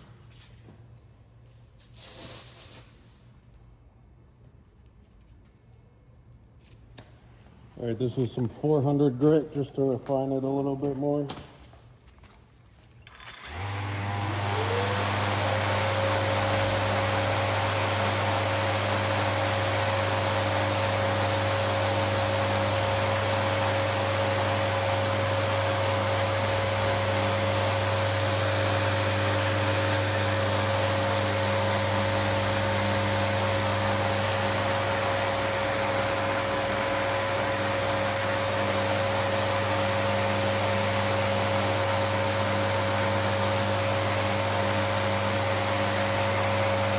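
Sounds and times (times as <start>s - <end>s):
electric sander running: 13.1s - 46.9s.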